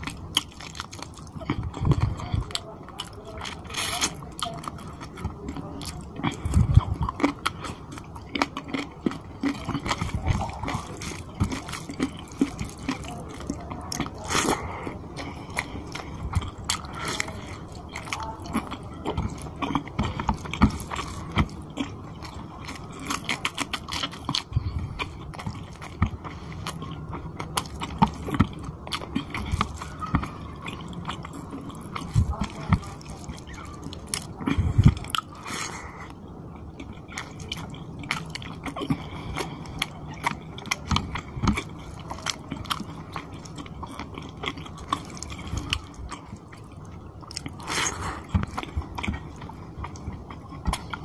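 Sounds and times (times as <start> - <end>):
wet chewing and lip-smacking: 0.0 - 51.0.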